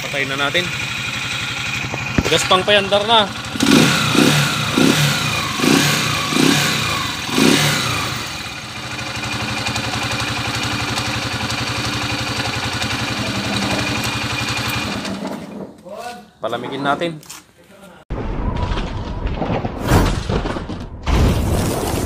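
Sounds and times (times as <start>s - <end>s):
motorcycle engine revving and idling: 0.0s - 15.7s.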